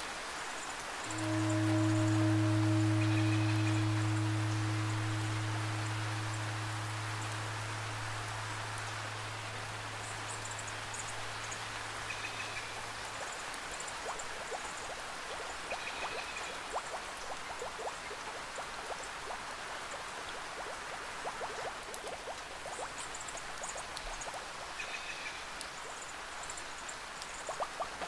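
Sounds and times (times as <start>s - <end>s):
running water: 0.0s - 28.0s
steady rain: 0.0s - 28.0s
low held instrument tone: 1.0s - 13.0s
water drips plinking: 1.0s - 28.0s.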